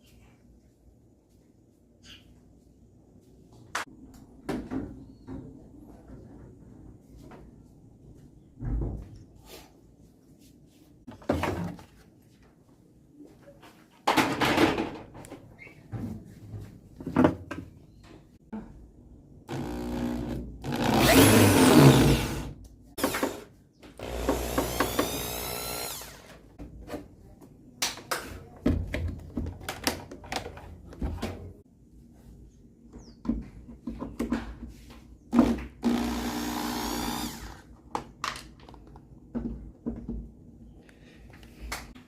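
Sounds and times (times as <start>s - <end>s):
power drill whining: 19.5s - 23.4s, 24.0s - 26.4s, 35.8s - 37.6s.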